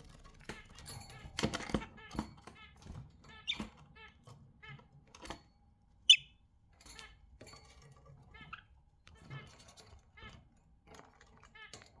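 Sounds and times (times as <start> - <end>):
budgerigars chattering: 6.1 - 6.3.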